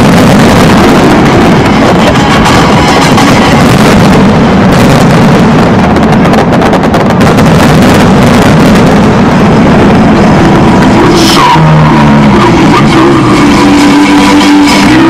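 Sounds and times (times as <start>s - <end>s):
fireworks banging and crackling: 0.0s - 11.6s.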